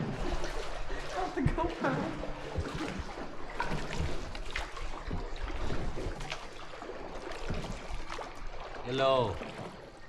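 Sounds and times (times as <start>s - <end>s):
water splashing around boat: 0.0s - 10.0s.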